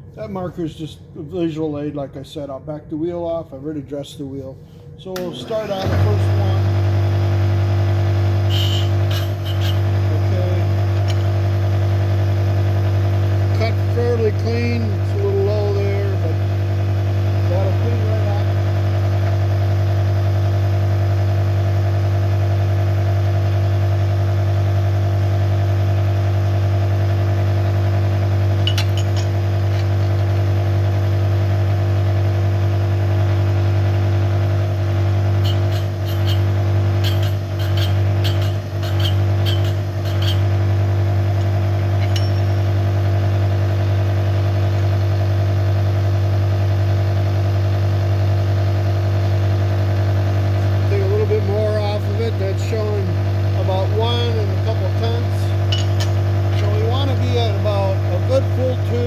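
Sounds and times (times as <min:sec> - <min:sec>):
grinder humming: 0:05.3 - 0:20.0, 0:25.0 - 0:45.9, 0:49.6 - 0:59.0.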